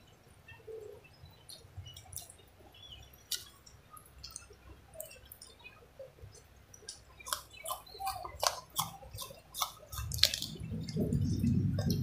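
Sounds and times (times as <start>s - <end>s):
soft chewing: 0.1s - 12.0s
mouth clicks and wet smacks: 1.5s - 2.4s, 3.3s - 5.7s, 6.3s - 12.0s.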